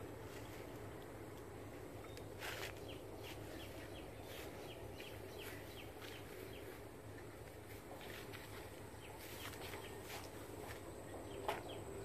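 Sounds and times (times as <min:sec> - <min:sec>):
faint outdoor background: 0:00.0 - 0:12.0
bird chirping: 0:01.9 - 0:06.9, 0:08.1 - 0:12.0.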